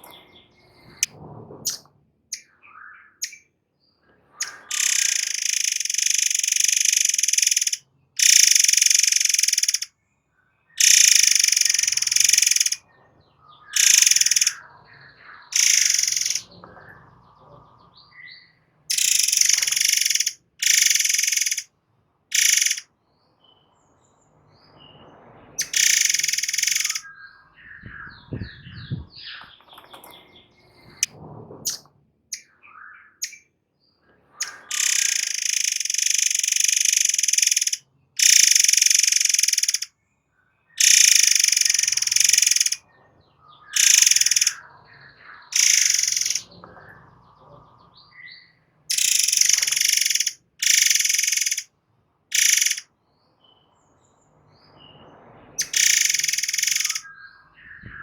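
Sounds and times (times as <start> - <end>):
faint bird chirps: 1.7 - 21.7, 22.3 - 23.9, 24.6 - 31.1, 31.7 - 51.7, 52.3 - 53.8, 54.7 - 58.0
bird buzzing song bursts: 4.4 - 9.9, 10.8 - 12.8, 13.8 - 14.6, 15.5 - 16.5, 18.9 - 21.6, 22.3 - 22.8, 25.6 - 27.0, 34.4 - 39.9, 40.8 - 42.8, 43.7 - 44.6, 45.5 - 46.5, 48.9 - 51.6, 52.3 - 52.9, 55.6 - 58.0.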